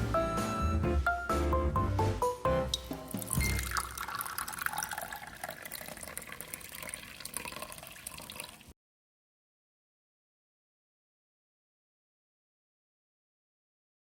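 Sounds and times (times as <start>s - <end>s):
background music: 0.0s - 4.6s
running water splashing: 2.7s - 8.7s.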